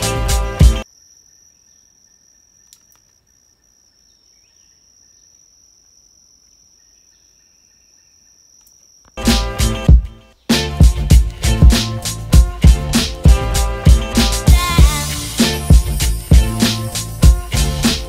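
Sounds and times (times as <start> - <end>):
music track: 0.0 - 0.8, 9.2 - 18.0
faint insect trill: 0.8 - 9.2.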